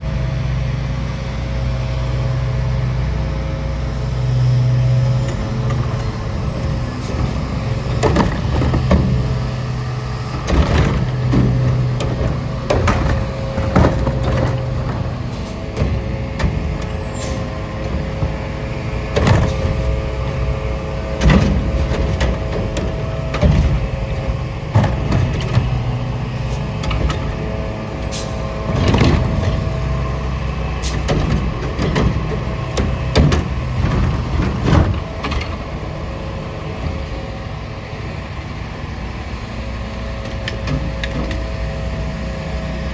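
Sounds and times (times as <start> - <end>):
diesel engine running: 0.0 - 42.9
metallic clanks and bangs: 6.8 - 37.4.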